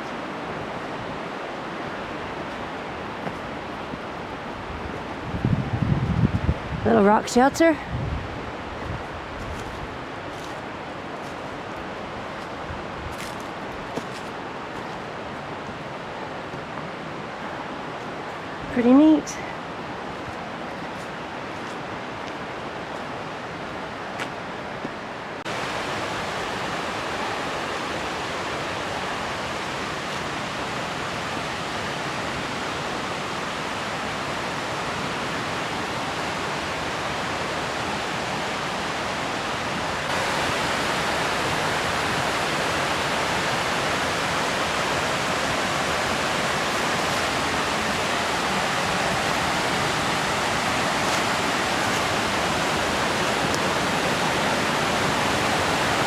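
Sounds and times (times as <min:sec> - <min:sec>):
waterfall rushing: 0:00.0 - 0:05.4, 0:25.4 - 0:56.0.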